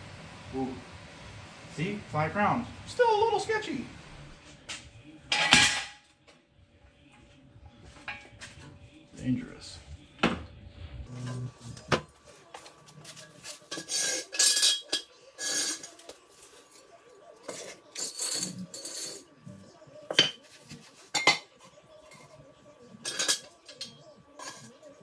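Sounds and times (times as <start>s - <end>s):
metal scraping: 11.1s - 19.4s.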